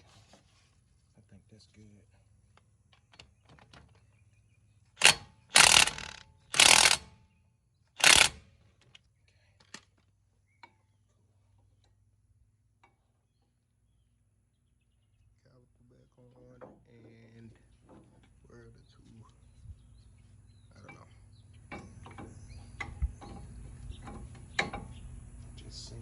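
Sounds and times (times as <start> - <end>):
power tool bursts: 5.0 - 7.2, 8.0 - 8.6.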